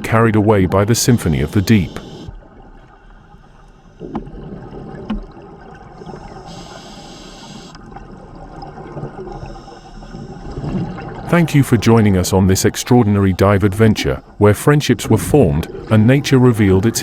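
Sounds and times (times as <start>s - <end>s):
hiss of bubbles: 1.1s - 2.4s, 5.8s - 8.0s, 8.6s - 11.2s
water gurgling and bubbling: 4.0s - 17.0s.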